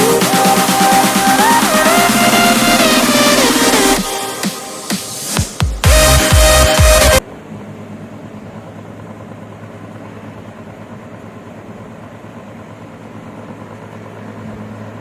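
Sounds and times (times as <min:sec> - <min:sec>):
small motor fan humming: 0:06.8 - 0:15.0.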